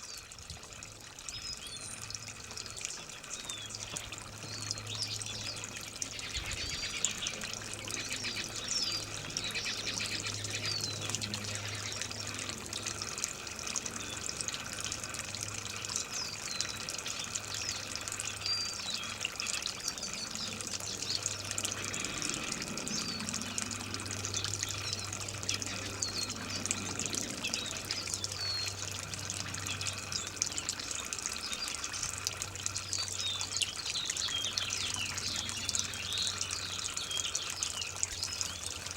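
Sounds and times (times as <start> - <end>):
water trickling: 0.0 - 38.9
birds chirping: 13.7 - 38.9.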